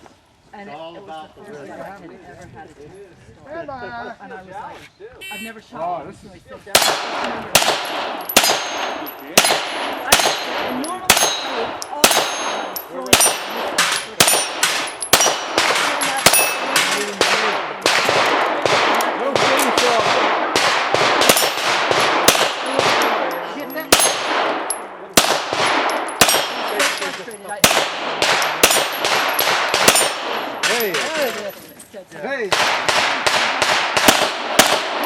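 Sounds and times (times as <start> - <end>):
rapid pistol fire: 6.7 - 23.3, 23.9 - 31.2, 32.5 - 35.0
bullets clanging on steel: 6.8 - 20.0, 21.2 - 31.9.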